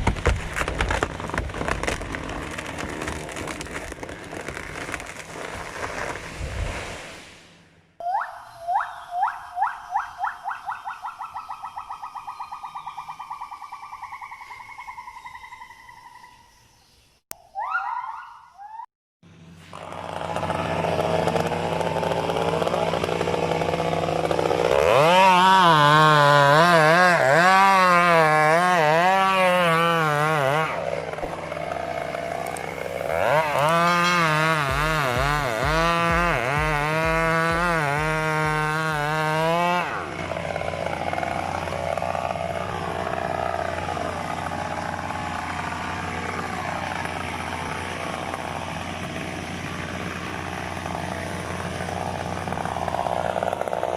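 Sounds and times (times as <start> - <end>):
chainsaw revving: 0.1 - 6.2, 19.3 - 53.9.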